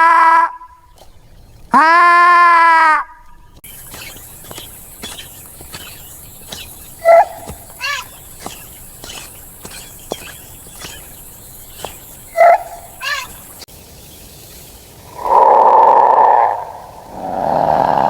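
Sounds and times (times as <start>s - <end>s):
animal calling: 0.0s - 13.7s
outdoor ambience: 0.0s - 18.0s.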